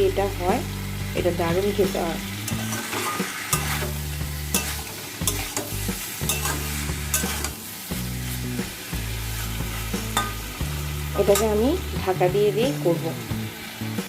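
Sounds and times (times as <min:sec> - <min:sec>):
vegetables sizzling in oil: 0:00.0 - 0:14.0
spatula scraping a pan: 0:02.4 - 0:11.9.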